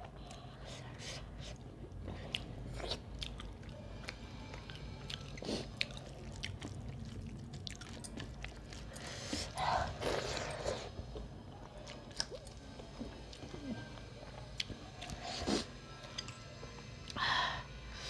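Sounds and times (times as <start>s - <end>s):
wet chewing with mouth clicks: 1.4s - 15.2s.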